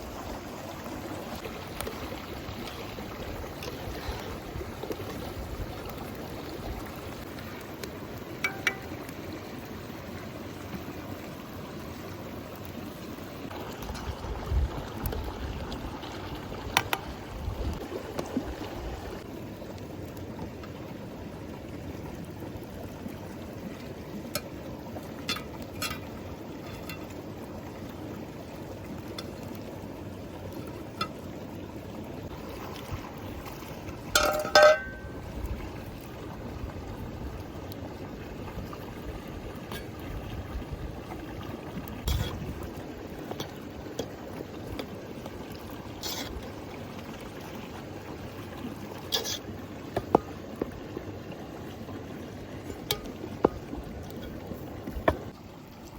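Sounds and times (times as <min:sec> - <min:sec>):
ringing metal clatter: 0:34.2 - 0:35.1.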